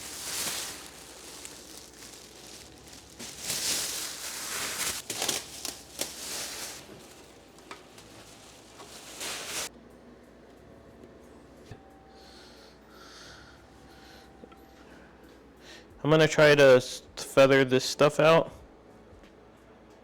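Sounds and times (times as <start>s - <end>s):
plastic sheet crackling rustle: 0.0s - 9.7s.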